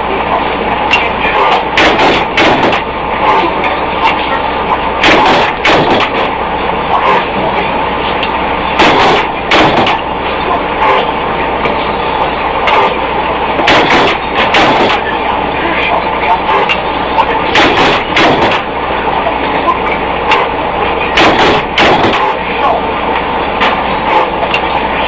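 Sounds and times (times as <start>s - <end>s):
dense machinery clatter: 0.0s - 25.0s
machinery low hum: 0.0s - 25.0s
sharp metal knocks and clanks: 1.7s - 2.9s, 5.0s - 6.3s, 8.2s - 10.1s, 13.6s - 15.1s, 17.5s - 18.7s, 21.2s - 22.4s.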